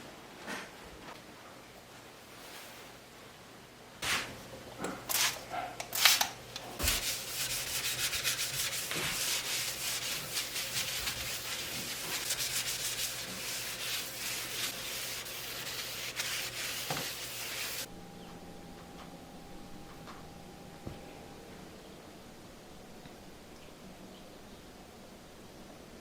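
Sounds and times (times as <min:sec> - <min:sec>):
scrubbing kitchen surface: 0:06.8 - 0:17.9.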